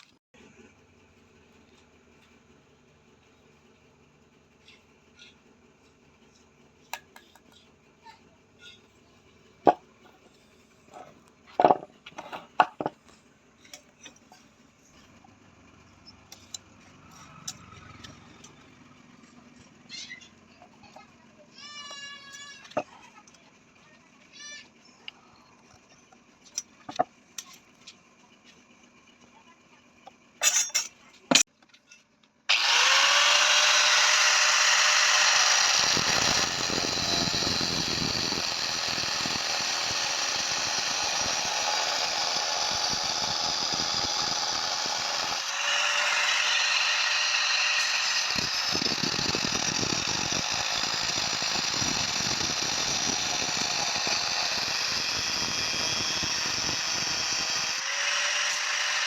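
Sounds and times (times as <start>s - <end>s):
power tool whining: 32.5s - 59.0s.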